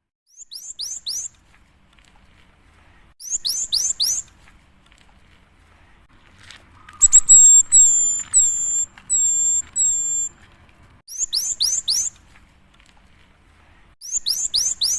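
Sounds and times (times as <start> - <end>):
bird singing whistled notes: 0.3 - 1.3, 3.2 - 4.3, 7.0 - 10.4, 11.1 - 12.2, 14.0 - 14.9.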